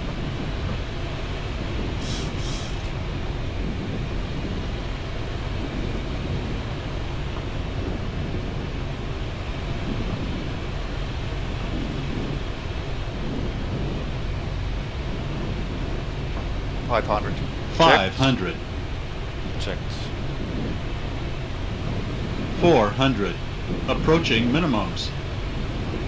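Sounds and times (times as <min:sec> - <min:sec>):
aircraft engine noise: 0:00.0 - 0:26.0
airflow over cockpit windscreen: 0:00.0 - 0:26.0.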